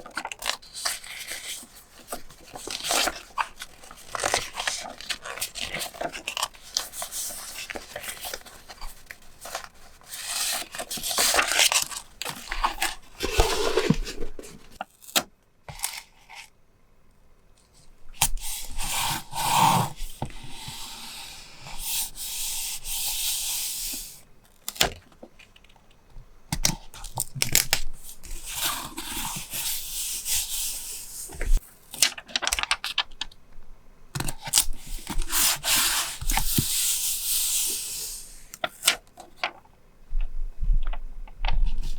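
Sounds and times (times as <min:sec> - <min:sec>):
paper rubbing and tearing: 0:12.5 - 0:14.8.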